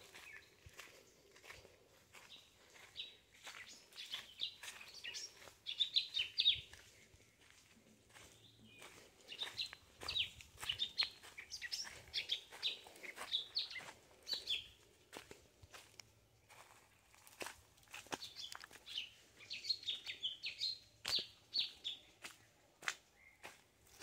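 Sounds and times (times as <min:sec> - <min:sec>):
footsteps crunching on dry leaves: 0:00.0 - 0:24.0
bird chirping: 0:02.2 - 0:06.9, 0:08.1 - 0:14.8, 0:18.1 - 0:22.3.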